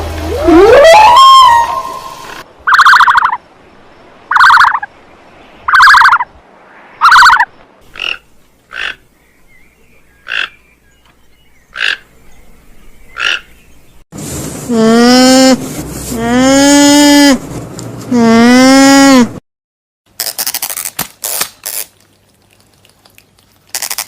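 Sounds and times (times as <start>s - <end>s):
animal buzzy calls: 0.4s - 3.4s, 4.3s - 4.9s, 5.7s - 6.3s, 7.0s - 9.0s.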